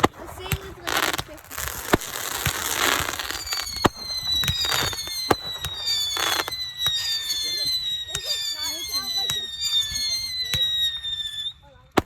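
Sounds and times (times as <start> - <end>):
fireworks bangs: 0.0 - 12.0
hissing crackle: 0.0 - 12.0
high falling whistles: 2.1 - 11.7.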